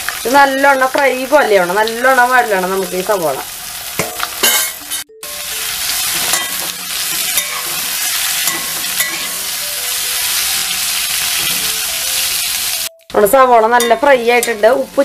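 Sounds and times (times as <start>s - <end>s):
onions sizzling in oil: 0.0s - 12.9s, 13.5s - 15.0s
spatula scraping a pan: 6.0s - 9.6s.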